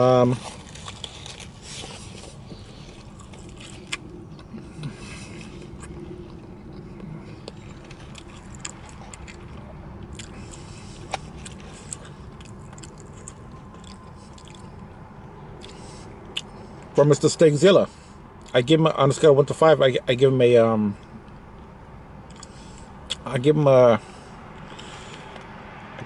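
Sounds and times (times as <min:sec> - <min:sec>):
low steady hum: 0:00.0 - 0:26.0
man chewing: 0:00.3 - 0:15.0, 0:15.6 - 0:16.9, 0:22.3 - 0:23.2, 0:24.6 - 0:25.4.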